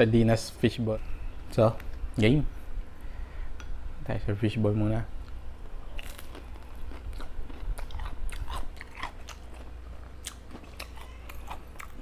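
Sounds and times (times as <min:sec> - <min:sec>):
wet chewing and mouth smacks: 0:06.0 - 0:12.0.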